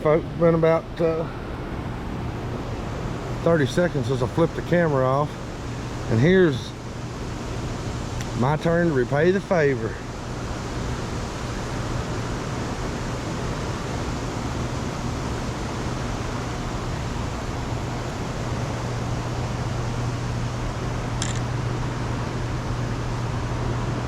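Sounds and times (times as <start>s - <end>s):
steady low hum: 0.0s - 24.0s
constant rushing noise: 0.1s - 24.0s.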